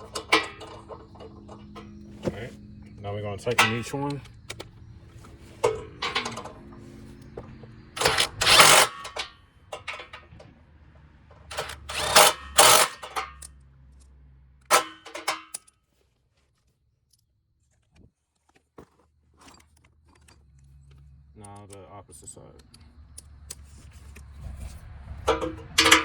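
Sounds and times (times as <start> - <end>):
ratchet tightening bolts: 0.0 - 2.1, 5.6 - 10.4, 11.5 - 13.6, 14.7 - 15.7, 25.3 - 26.0.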